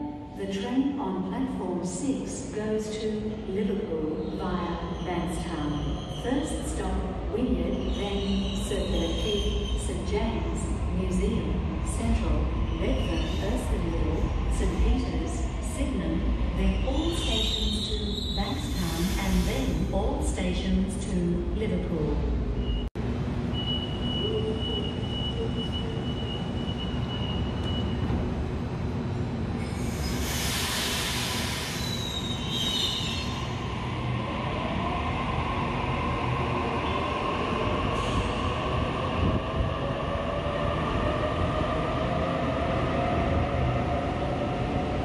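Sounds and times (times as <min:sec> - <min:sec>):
train doors air hiss: 0:18.7 - 0:19.9, 0:29.6 - 0:33.0.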